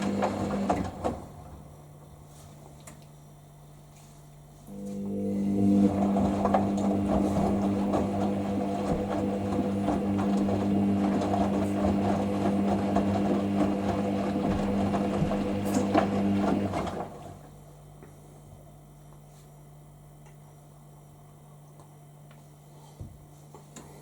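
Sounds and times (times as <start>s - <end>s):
washing machine drum tumbling: 0.0s - 1.8s, 5.6s - 17.4s.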